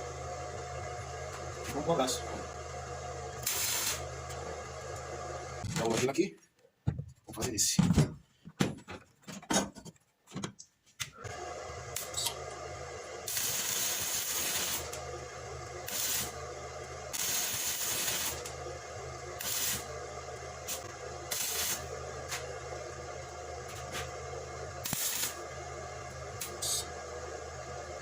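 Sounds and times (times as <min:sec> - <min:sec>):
low steady hum: 0:00.0 - 0:06.0
arc welding crackling hiss: 0:03.4 - 0:04.4, 0:13.2 - 0:15.0, 0:15.8 - 0:16.4, 0:17.1 - 0:18.6, 0:19.4 - 0:20.0, 0:20.6 - 0:22.5, 0:24.8 - 0:25.4, 0:26.4 - 0:26.9.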